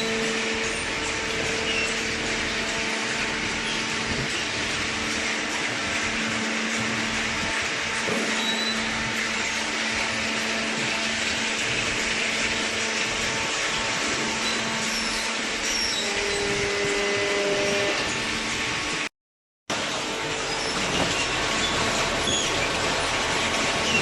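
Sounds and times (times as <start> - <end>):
brief machine tone: 8.2 - 9.0, 14.4 - 18.2.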